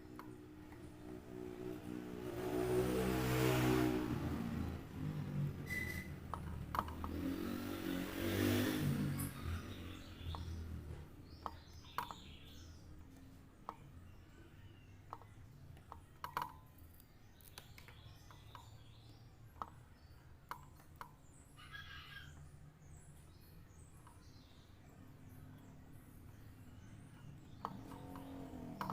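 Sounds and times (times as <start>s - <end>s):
motor vehicle passing: 0.0s - 16.5s, 24.6s - 28.9s.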